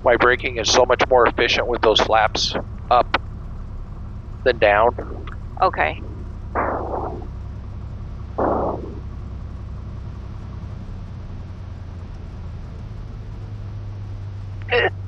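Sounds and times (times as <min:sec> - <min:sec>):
propeller plane engine drone: 0:00.0 - 0:15.0.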